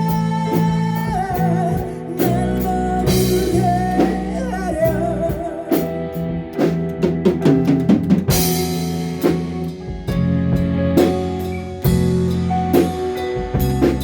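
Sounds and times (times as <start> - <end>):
person singing: 0.0 - 6.9
bass guitar: 0.0 - 14.0
drums beating: 0.0 - 14.0
electric guitar: 0.0 - 14.0.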